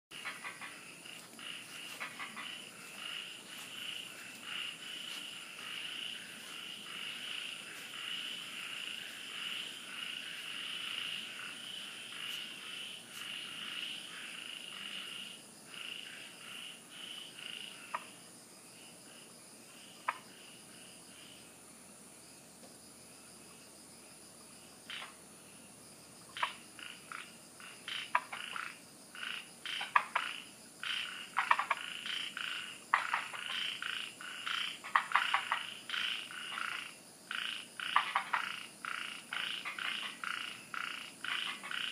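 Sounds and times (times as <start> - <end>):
frogs calling: 0.1 - 21.6, 24.4 - 41.9
high-pitched insect trill: 23.1 - 41.9.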